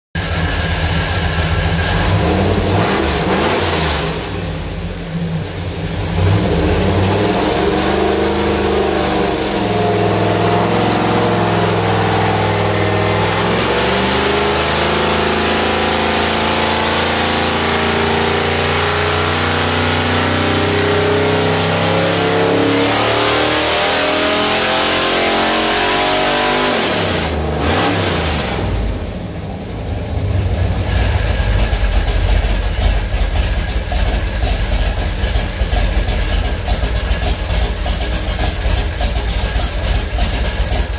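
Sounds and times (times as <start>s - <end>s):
car engine revving on dyno: 0.2s - 32.2s.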